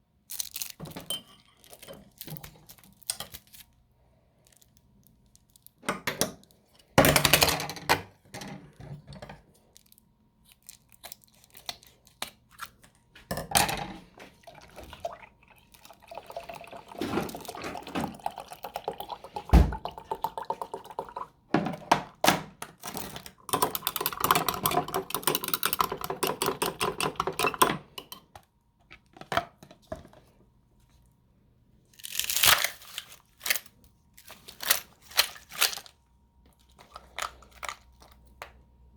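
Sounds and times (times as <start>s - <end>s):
liquid pouring into a glass: 14.4s - 21.3s.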